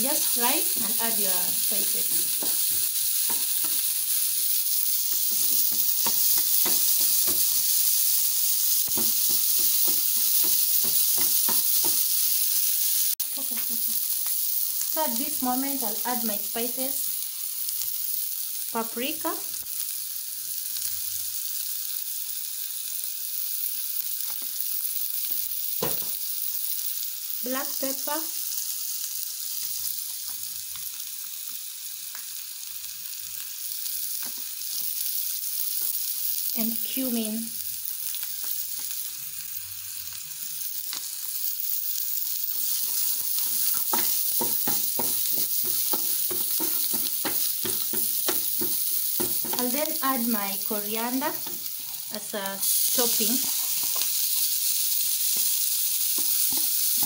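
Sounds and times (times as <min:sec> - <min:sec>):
onions sizzling in oil: 0:00.0 - 0:57.0
wooden spoon scraping a pan: 0:42.6 - 0:49.7.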